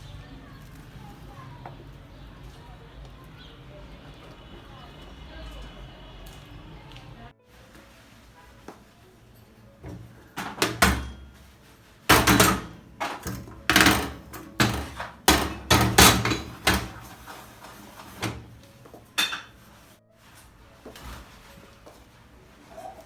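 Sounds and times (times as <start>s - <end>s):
objects knocking and clattering: 9.8s - 20.0s.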